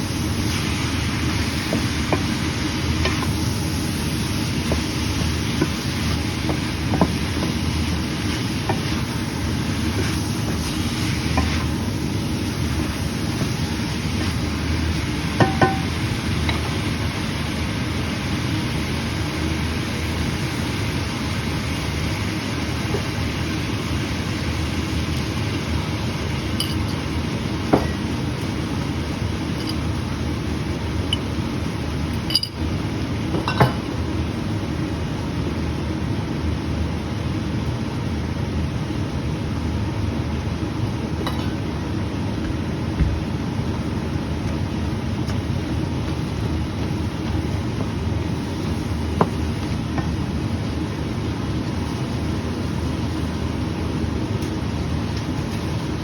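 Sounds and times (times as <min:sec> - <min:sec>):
food sizzling in a pan: 0:00.0 - 0:32.7.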